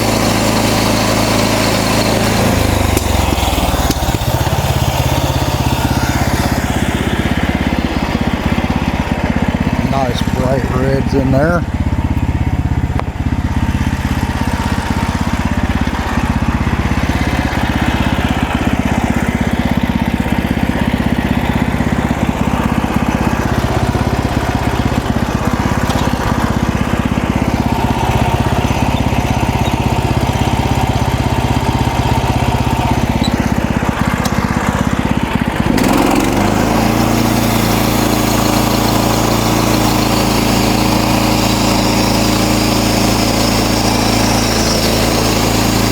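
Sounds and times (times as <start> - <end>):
band saw cutting log: 0.0 - 45.9
sawmill engine running: 0.0 - 45.9.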